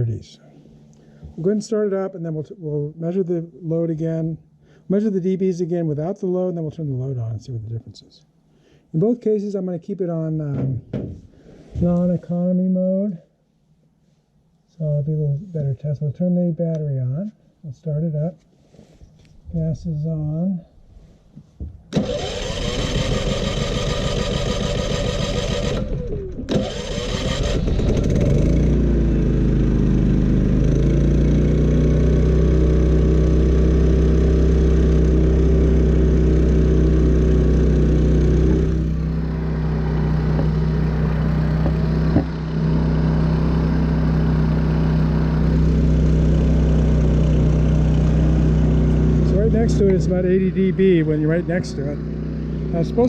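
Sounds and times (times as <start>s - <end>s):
generator engine running: 21.9s - 53.0s.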